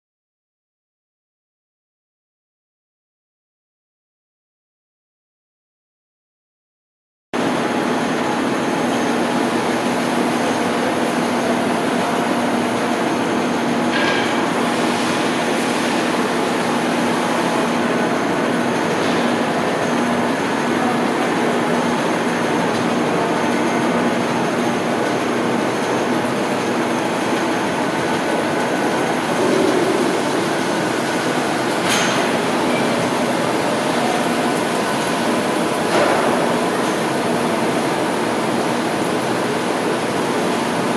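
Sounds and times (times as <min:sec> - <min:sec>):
surface grinder humming: 0:29.0 - 0:37.6.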